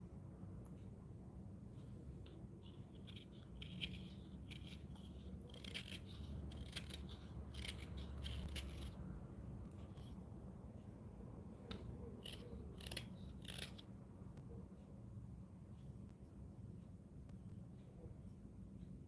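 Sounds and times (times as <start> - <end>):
low steady hum: 0.0 - 19.0
blade scraping wood: 3.0 - 9.0.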